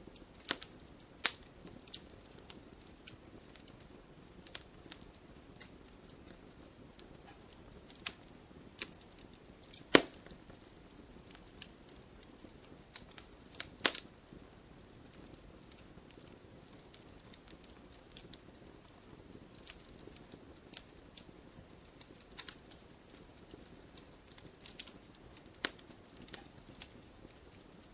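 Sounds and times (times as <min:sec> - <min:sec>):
campfire wood crackling: 0:00.0 - 0:27.9
soft low fire hiss: 0:00.0 - 0:27.9
loud wood cracks: 0:09.7 - 0:10.3.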